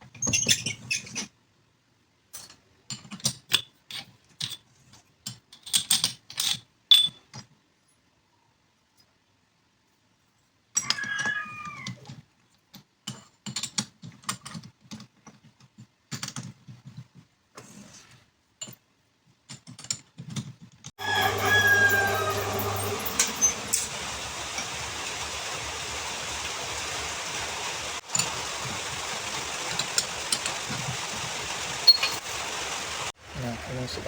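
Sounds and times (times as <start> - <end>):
rooster crowing: 21.0 - 24.4.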